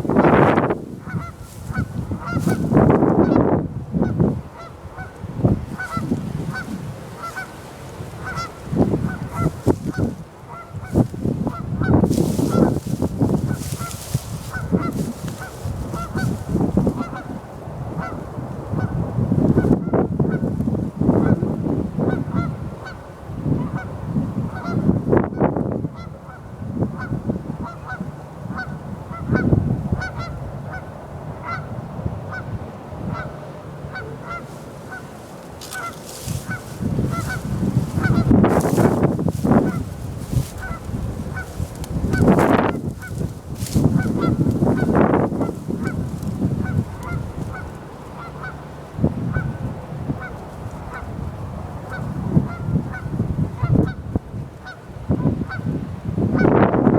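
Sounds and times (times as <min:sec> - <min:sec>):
honking bird calls: 0:01.0 - 0:03.4, 0:04.5 - 0:07.6, 0:08.2 - 0:17.3, 0:33.1 - 0:48.7.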